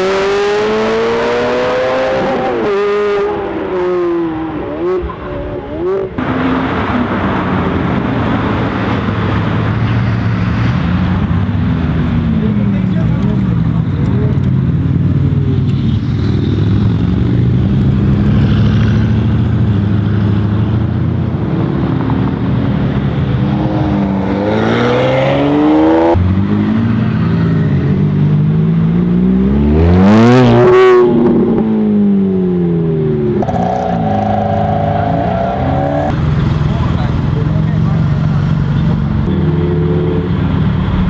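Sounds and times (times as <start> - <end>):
car engines accelerating hard: 0.0 - 41.0.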